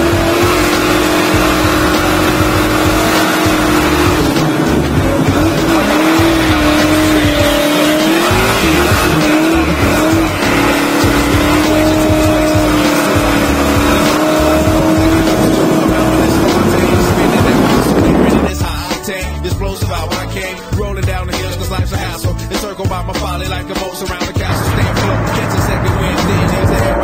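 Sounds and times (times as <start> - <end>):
car engine revving high: 0.0 - 18.5, 24.5 - 27.0.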